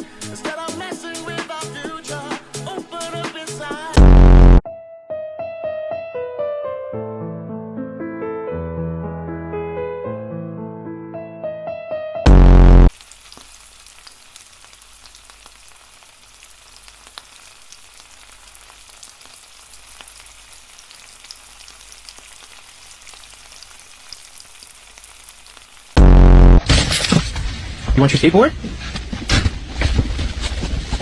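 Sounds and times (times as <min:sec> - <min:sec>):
loud distorted blast: 0:04.0 - 0:04.6, 0:12.3 - 0:12.9, 0:26.0 - 0:26.8.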